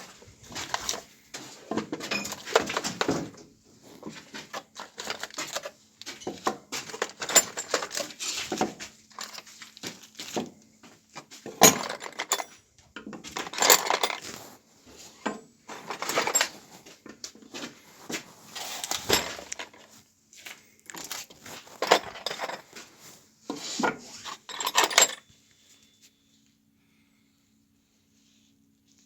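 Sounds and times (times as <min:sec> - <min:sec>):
metal and wood objects clattering: 0:00.4 - 0:10.5, 0:11.2 - 0:14.5, 0:15.1 - 0:20.0, 0:21.0 - 0:25.2.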